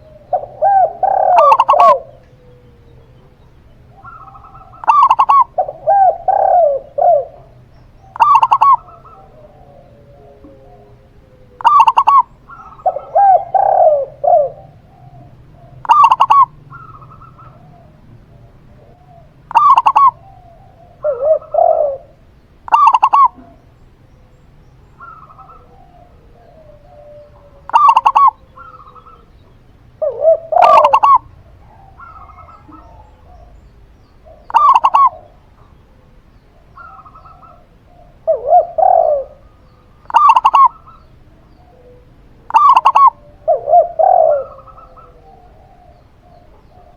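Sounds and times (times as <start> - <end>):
sharp high dove coo: 0.0 - 23.7, 25.0 - 33.6, 34.2 - 35.8, 36.7 - 46.9
low rolling dove coo: 0.0 - 46.9.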